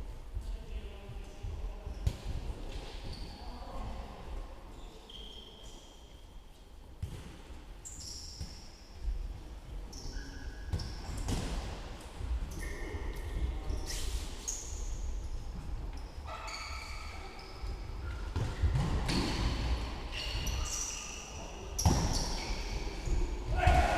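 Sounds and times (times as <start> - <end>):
shoes squeaking on floor: 9.8 - 11.3, 12.4 - 13.0, 13.7 - 15.0, 15.9 - 23.4
ball kicked and bouncing: 18.3 - 19.8.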